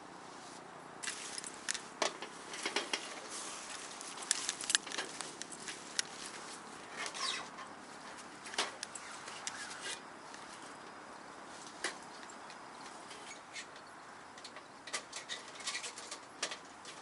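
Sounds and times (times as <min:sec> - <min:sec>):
nylon tent fabric rustling: 0:00.2 - 0:08.4
sharp clicks and scrapes: 0:01.0 - 0:10.4.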